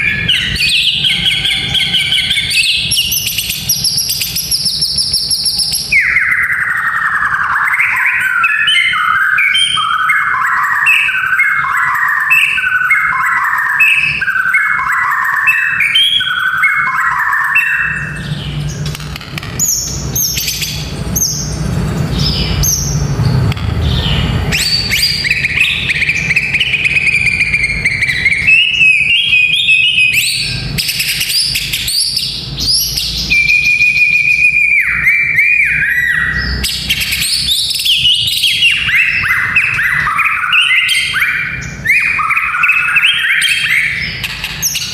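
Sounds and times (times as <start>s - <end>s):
bird singing whistled phrases: 0.0s - 18.8s, 24.5s - 44.9s
steady low hum: 17.9s - 29.3s.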